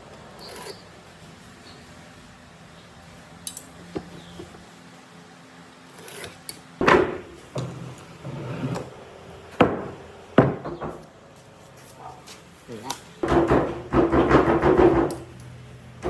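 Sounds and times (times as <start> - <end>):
sharp knocks on wood: 9.6 - 11.0, 13.2 - 15.2.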